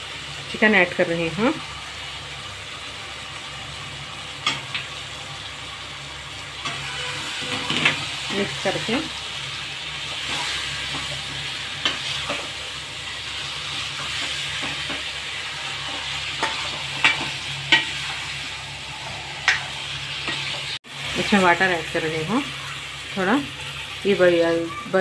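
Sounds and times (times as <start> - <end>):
chicken sizzling in oil: 0.0 - 25.0
metal spoon scraping a pan: 6.6 - 9.0, 10.1 - 12.6, 13.4 - 20.8.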